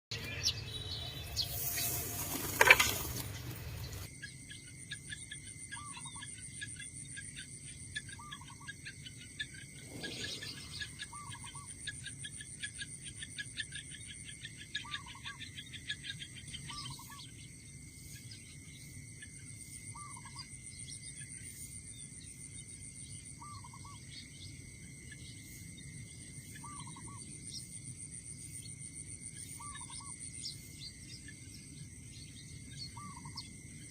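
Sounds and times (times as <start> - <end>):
insects shrilling: 0.6 - 4.1, 9.6 - 11.7.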